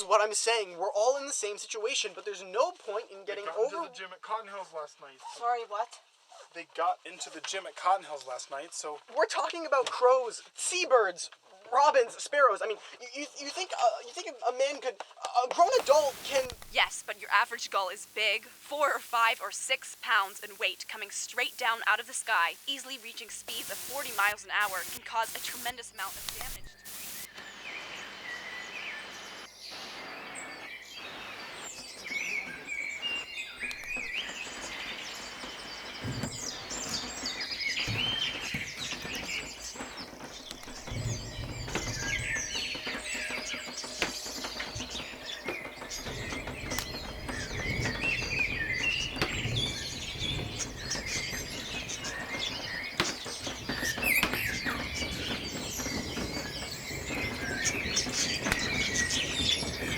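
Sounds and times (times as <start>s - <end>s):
birds chirping and calling: 15.8s - 59.9s.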